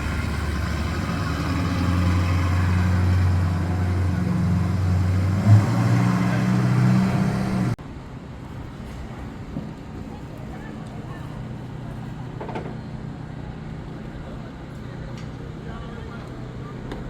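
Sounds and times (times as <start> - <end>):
car engine idling: 0.0 - 5.6.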